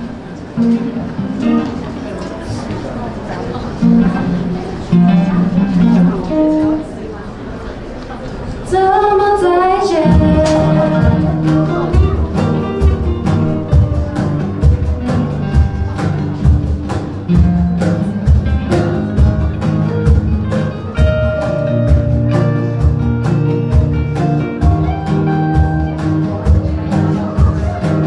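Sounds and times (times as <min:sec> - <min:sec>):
guitar: 0:00.0 - 0:28.0
steady drum beat: 0:10.0 - 0:28.0.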